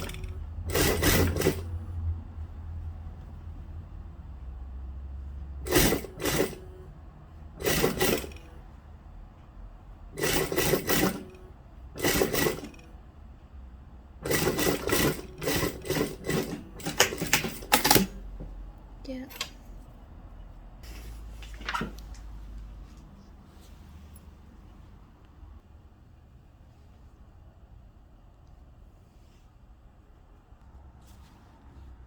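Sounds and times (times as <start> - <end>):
sewing machine stitching: 0.0 - 2.2, 5.3 - 8.7, 10.1 - 13.0, 14.2 - 18.3.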